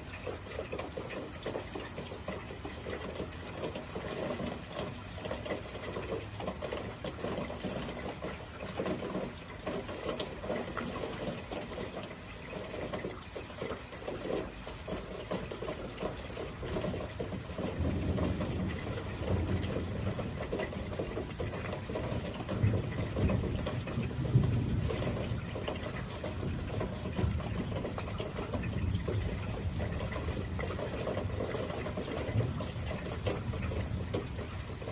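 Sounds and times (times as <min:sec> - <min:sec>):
gushing water: 0:00.0 - 0:34.9.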